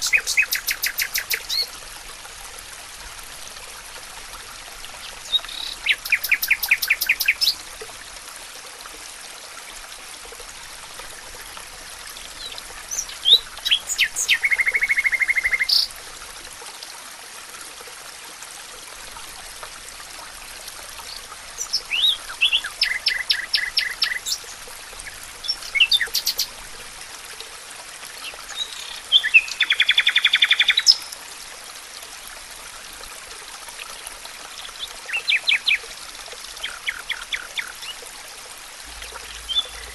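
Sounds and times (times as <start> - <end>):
songbird trilling: 0.0 - 1.7, 5.2 - 7.6, 12.9 - 15.9, 21.6 - 24.4, 25.4 - 26.5
stream water flowing: 0.0 - 39.9.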